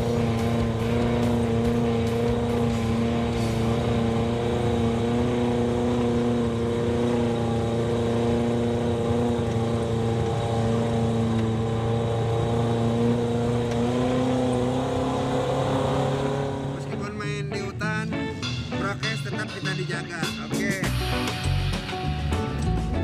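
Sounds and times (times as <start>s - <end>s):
vehicle engine droning: 0.0s - 23.0s.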